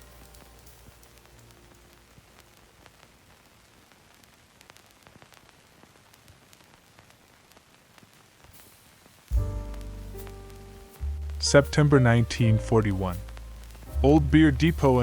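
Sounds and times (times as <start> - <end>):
faint steady hiss: 0.0 - 15.0
soft crackles and clicks: 0.0 - 15.0.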